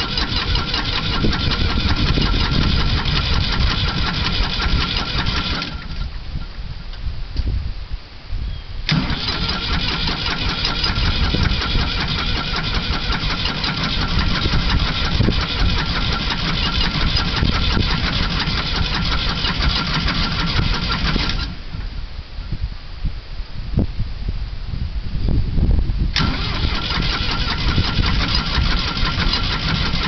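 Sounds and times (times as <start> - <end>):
tractor engine starting and running: 0.0 - 6.6, 8.9 - 21.9, 26.1 - 30.0.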